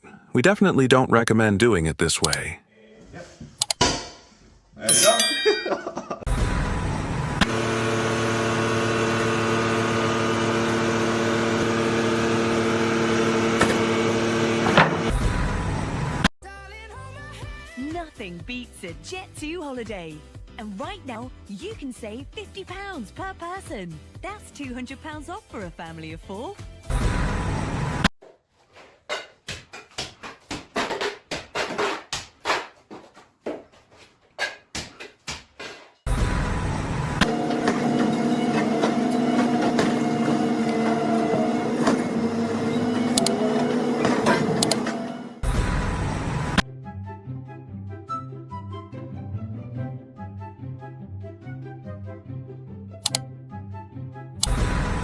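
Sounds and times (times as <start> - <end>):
machinery hum: 6.3 - 16.2, 36.1 - 46.6.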